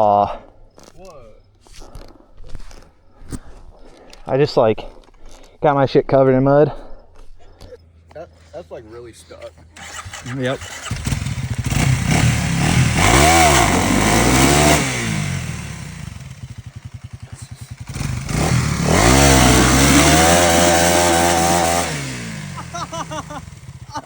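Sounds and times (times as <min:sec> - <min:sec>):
dirt bike engine revving: 0:09.8 - 0:24.0.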